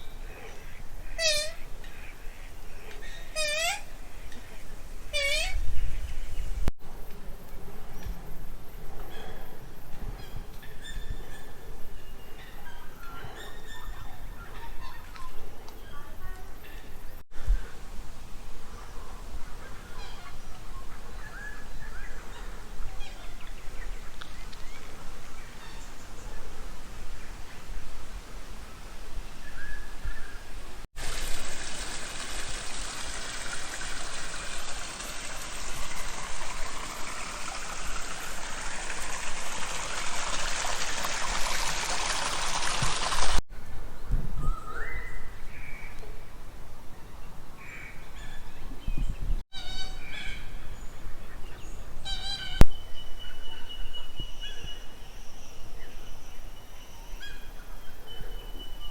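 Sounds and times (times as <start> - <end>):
faint outdoor background noise: 0.0 - 58.9.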